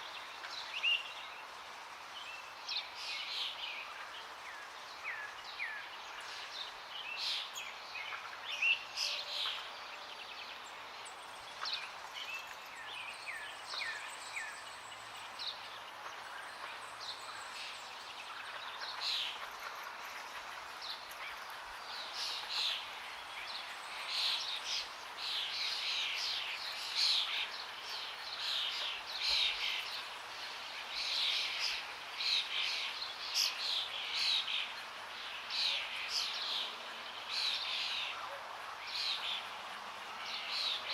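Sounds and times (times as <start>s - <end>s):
birds chirping and singing: 2.2s - 40.9s.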